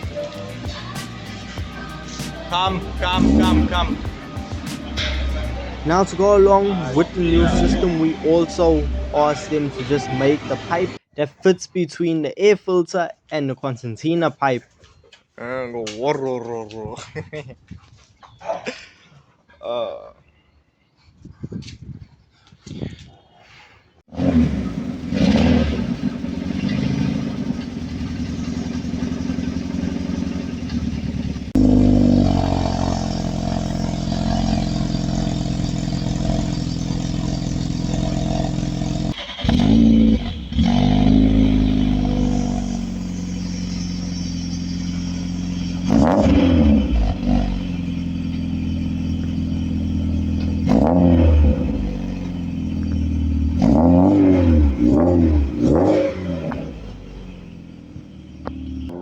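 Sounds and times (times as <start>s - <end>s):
car engine accelerating: 0.0s - 11.0s, 24.1s - 59.0s.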